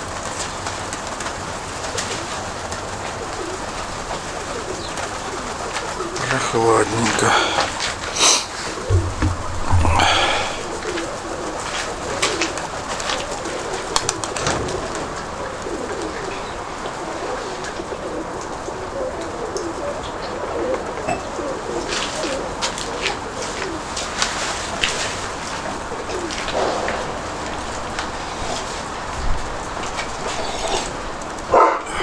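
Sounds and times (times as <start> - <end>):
pigeons cooing: 0.0 - 32.0
wind noise: 7.6 - 11.6.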